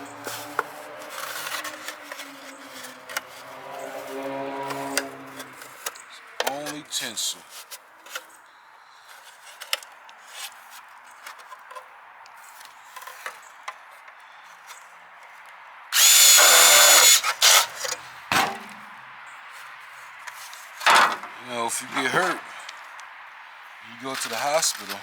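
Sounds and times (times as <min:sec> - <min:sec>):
power drill whining: 0:00.0 - 0:05.8, 0:16.0 - 0:17.9.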